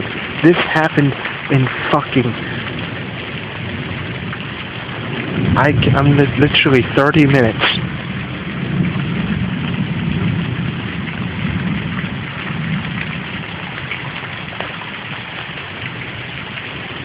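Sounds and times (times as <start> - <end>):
heavy rain: 0.0 - 17.0
low rumble: 0.0 - 17.0.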